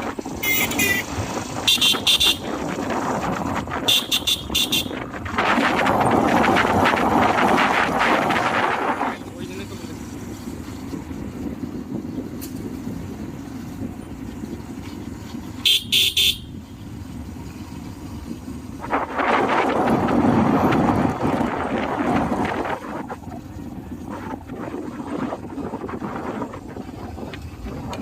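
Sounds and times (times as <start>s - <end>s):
engine and road rumble: 0.0s - 28.0s
vehicle horn tooting: 0.4s - 2.5s, 3.8s - 5.0s, 15.6s - 16.6s.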